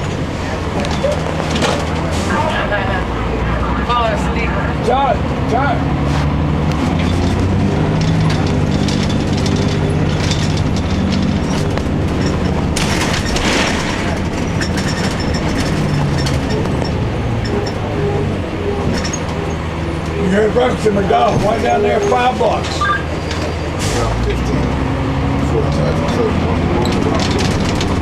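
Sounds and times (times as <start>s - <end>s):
bus diesel engine running: 0.0s - 28.0s
cabin rattles and clatter: 6.9s - 17.8s.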